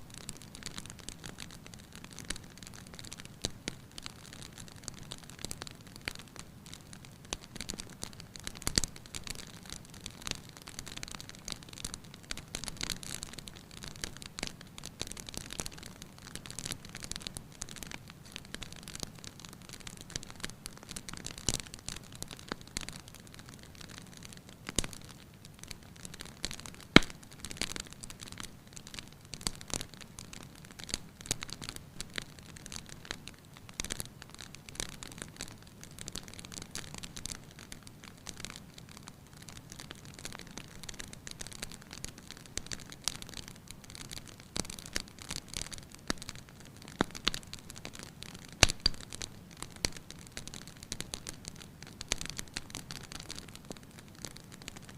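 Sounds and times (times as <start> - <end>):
wood fire crackling: 0.0 - 54.9
loud snap of fire: 23.6 - 29.9, 47.0 - 53.7
fire soft steady rush: 48.4 - 49.6.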